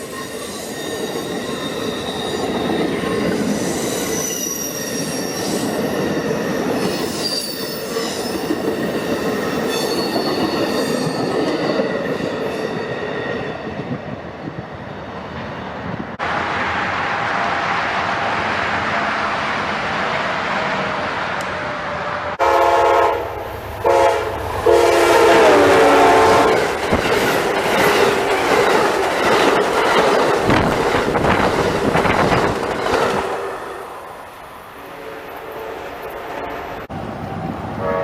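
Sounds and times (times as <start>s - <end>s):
train wheel and car noise: 0.0s - 38.0s
train rail rumble: 1.2s - 38.0s
locomotive horn blasts: 22.0s - 26.6s, 35.0s - 36.8s, 37.8s - 38.0s.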